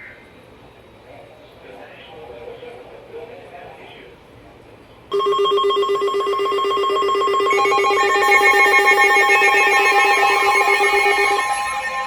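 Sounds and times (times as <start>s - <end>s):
fast pulsing beeps: 5.1s - 12.0s
steady electronic alarm tones: 5.1s - 12.0s
wavering alarm tone: 5.1s - 12.0s.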